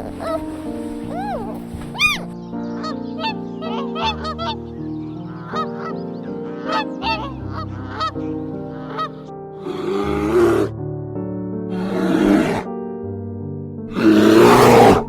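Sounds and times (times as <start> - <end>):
waterfowl honking: 0.0 - 4.6, 5.3 - 9.3
background music: 0.0 - 15.0
loud harsh animal call: 1.0 - 4.6, 5.3 - 10.7, 11.7 - 12.7, 13.9 - 15.0.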